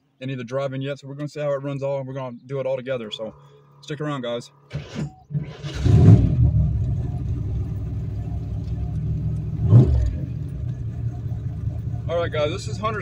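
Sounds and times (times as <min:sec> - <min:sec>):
car engine rumbling and revving: 0:04.7 - 0:13.0.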